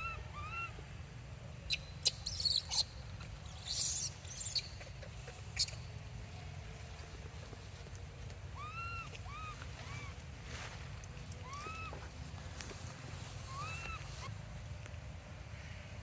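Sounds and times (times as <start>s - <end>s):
baby monkey squealing calls: 0.0s - 0.7s, 1.7s - 2.9s, 3.5s - 4.7s, 5.6s - 5.8s, 8.6s - 10.1s, 11.4s - 12.0s, 13.5s - 14.3s.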